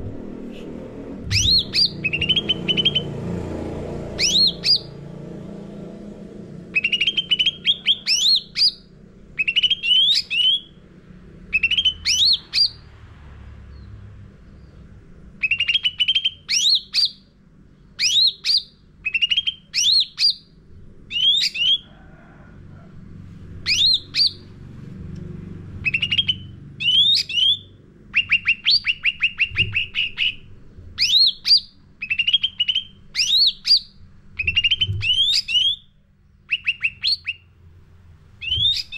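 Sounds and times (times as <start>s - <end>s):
songbird singing whistled phrases: 1.3s - 3.1s, 4.2s - 4.9s, 6.7s - 8.8s, 9.4s - 10.7s, 11.5s - 12.8s, 15.4s - 17.3s, 18.0s - 20.5s, 21.1s - 21.8s, 23.6s - 24.4s, 25.8s - 35.9s, 36.5s - 37.5s, 38.4s - 38.9s.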